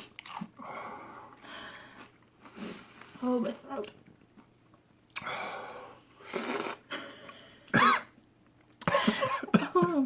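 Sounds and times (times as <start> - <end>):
person clearing throat: 7.7 - 8.1
person coughing: 7.7 - 8.1, 8.9 - 10.0.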